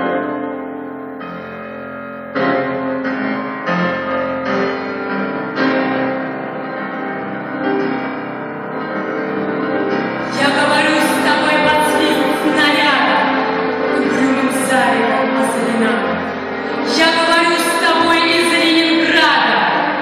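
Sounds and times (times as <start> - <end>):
slow piano music: 0.0 - 20.0.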